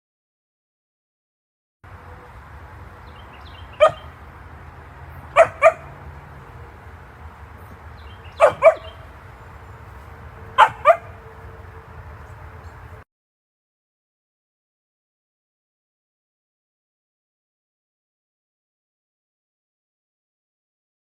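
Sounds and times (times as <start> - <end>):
dog barking: 3.8 - 4.1, 5.3 - 6.0, 8.3 - 9.1, 10.5 - 11.3.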